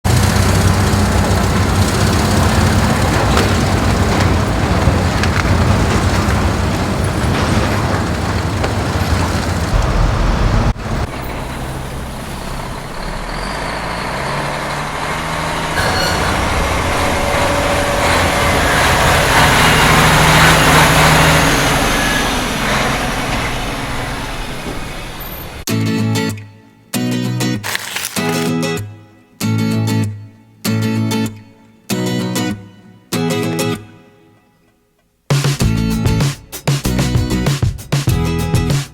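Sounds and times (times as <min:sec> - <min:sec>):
heavy vehicle engine running: 0:00.1 - 0:25.7.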